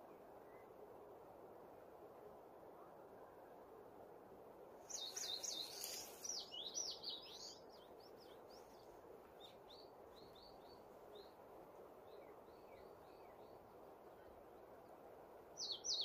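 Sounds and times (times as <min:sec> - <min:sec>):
songbird singing: 0:00.0 - 0:00.8, 0:04.8 - 0:16.0.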